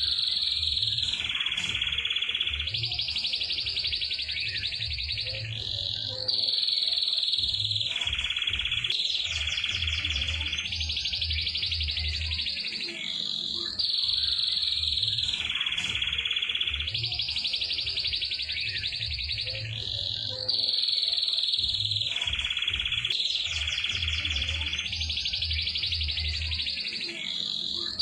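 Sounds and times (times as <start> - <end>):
canary singing rolling trills: 0.0 - 28.0.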